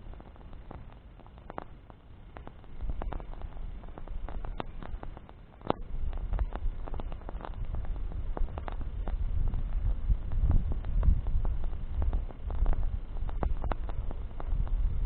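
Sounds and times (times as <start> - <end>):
campfire crackling and popping: 0.0 - 15.0
low rumble: 5.8 - 15.0.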